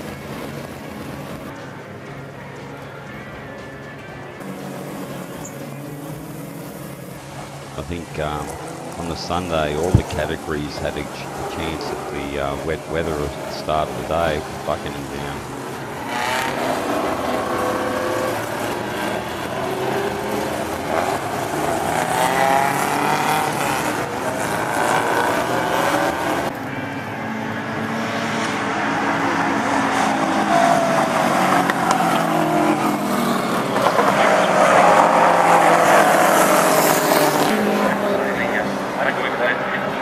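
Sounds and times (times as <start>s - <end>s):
race car engines revving and passing: 0.0s - 40.0s.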